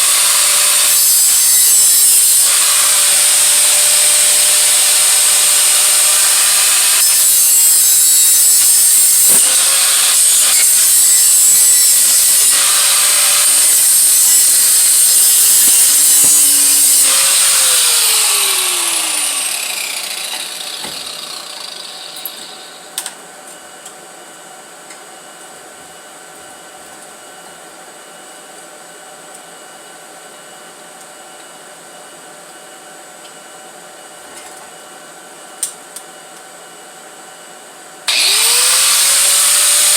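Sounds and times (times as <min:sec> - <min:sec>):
rotary tool grinding metal: 0:00.0 - 0:22.8, 0:38.1 - 0:39.9.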